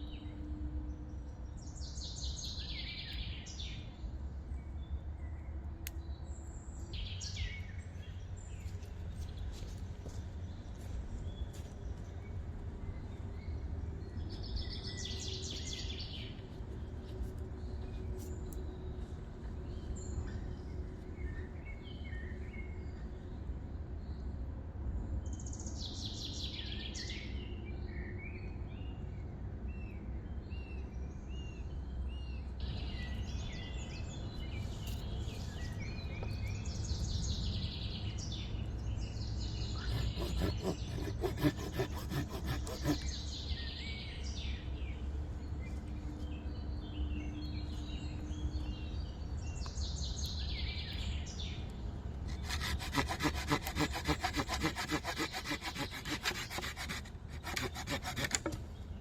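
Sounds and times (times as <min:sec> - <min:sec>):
hand saw cutting wood: 0:39.8 - 0:43.3, 0:52.3 - 0:58.6.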